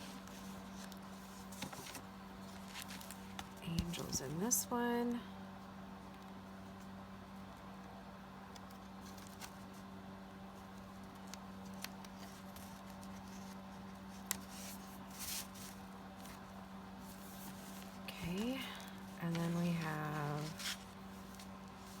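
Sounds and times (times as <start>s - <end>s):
paper being handled: 0.0s - 4.2s, 11.7s - 22.0s
paper rustling: 0.0s - 4.2s, 11.2s - 22.0s
steady low hum: 0.0s - 22.0s.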